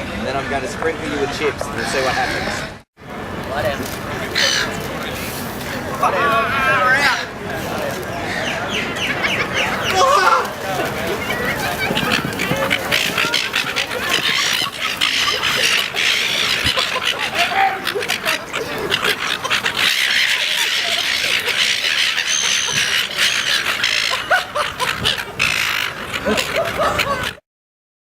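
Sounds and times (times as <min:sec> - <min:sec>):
seagulls squawking: 0:00.4 - 0:02.8, 0:04.1 - 0:07.4, 0:08.0 - 0:27.4.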